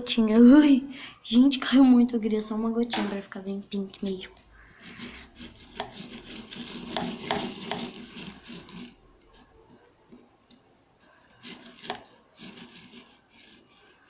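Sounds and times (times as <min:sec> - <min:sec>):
rubbing and rustling: 0:02.4 - 0:10.3, 0:11.0 - 0:14.0.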